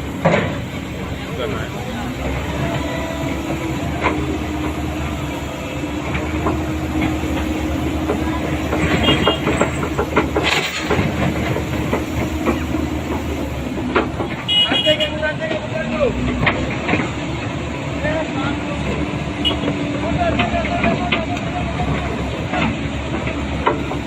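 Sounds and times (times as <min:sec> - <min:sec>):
excavator diesel engine running: 0:00.0 - 0:24.0
knocks and rattles: 0:00.1 - 0:14.5.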